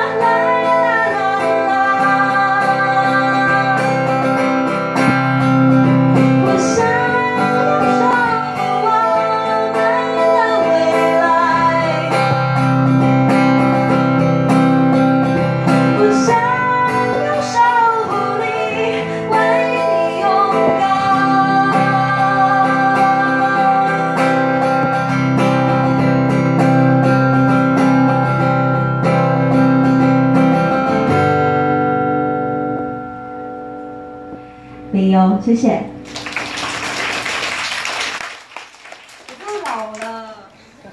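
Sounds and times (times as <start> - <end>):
acoustic guitar strumming: 0.0 - 34.9.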